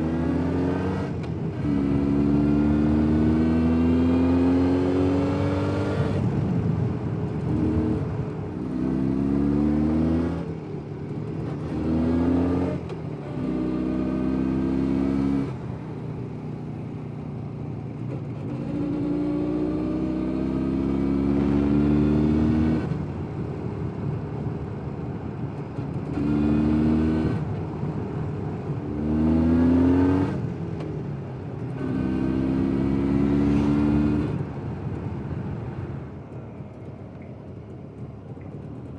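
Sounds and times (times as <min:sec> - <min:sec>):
motorcycle engine shifting gears: 0:25.3 - 0:38.9.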